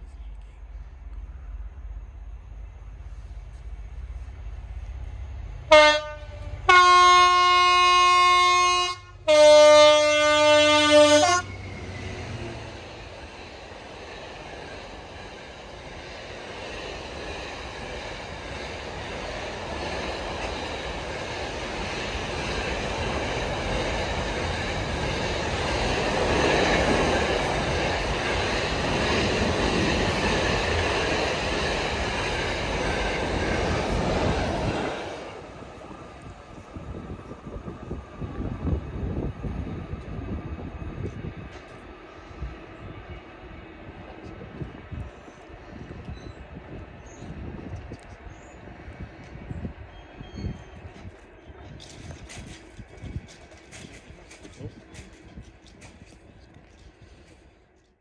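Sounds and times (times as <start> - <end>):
train wagons rumbling on rails: 0.0 - 58.0
two-tone locomotive horn: 5.7 - 12.4.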